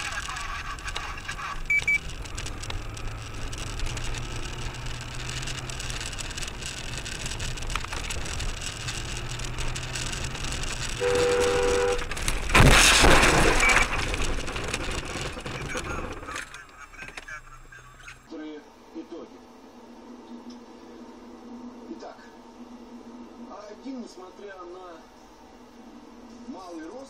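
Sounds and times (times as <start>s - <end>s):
car road and engine noise: 0.0s - 27.0s
car horn: 10.9s - 12.3s
loud collision impact: 11.2s - 15.0s.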